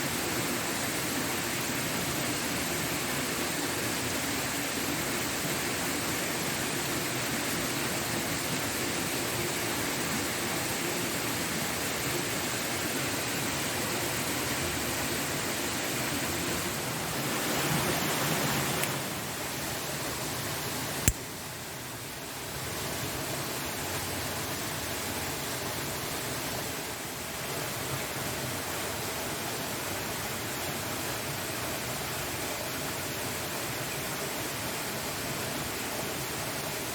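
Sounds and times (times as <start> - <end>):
sharp click: 21.0 - 21.3.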